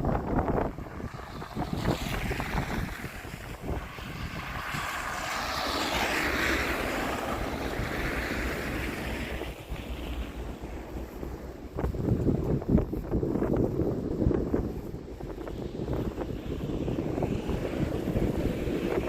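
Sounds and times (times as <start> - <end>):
vehicle tyres hissing on slush: 0.0 - 19.0
wind rumble on microphone: 0.0 - 19.0.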